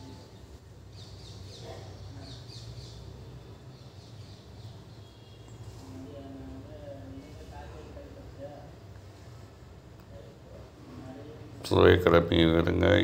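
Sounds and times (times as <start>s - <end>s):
bird chirping: 0.0s - 5.8s.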